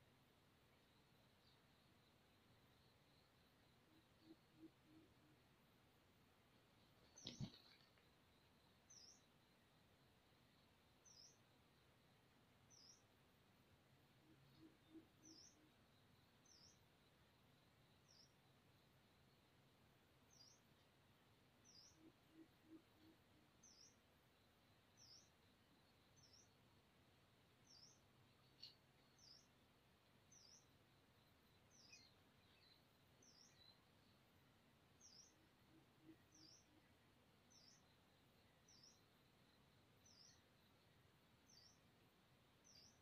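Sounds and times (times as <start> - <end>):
quiet outdoor background noise: 0.0 - 43.0
small bird chirping: 6.8 - 9.8, 10.9 - 11.6, 12.6 - 13.1, 14.2 - 17.2, 17.9 - 18.5, 20.2 - 20.9, 21.6 - 26.8, 27.5 - 43.0.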